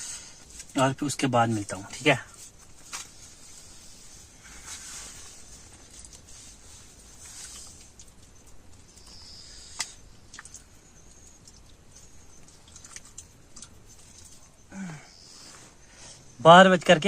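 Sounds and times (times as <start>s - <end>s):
night insects hissing: 3.0s - 11.0s, 14.6s - 16.5s
person chewing: 5.8s - 14.7s.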